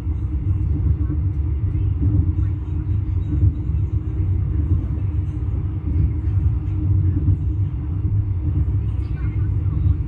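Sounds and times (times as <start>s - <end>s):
constant hum: 0.0s - 10.0s
train carriage rumble: 0.0s - 10.0s.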